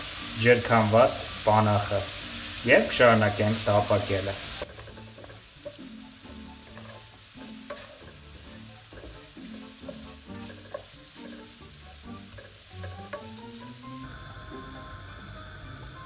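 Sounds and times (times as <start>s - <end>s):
carrots sizzling in oil: 0.0s - 16.0s
wooden spatula scraping pan: 4.5s - 13.8s.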